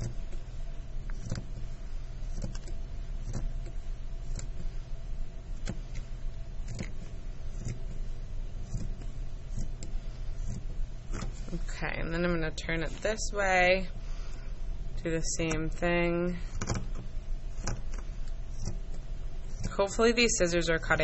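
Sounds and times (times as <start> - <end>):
steady low hum: 0.0 - 21.0
scissors snipping fabric: 1.1 - 1.6, 2.3 - 4.6, 5.6 - 8.0, 8.6 - 11.6, 18.5 - 20.3.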